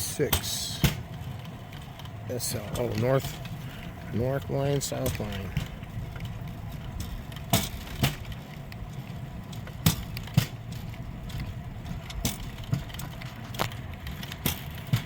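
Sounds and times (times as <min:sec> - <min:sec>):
steel wheels rolling on track: 0:00.0 - 0:15.0
wheels clacking over rail joints: 0:00.0 - 0:15.0.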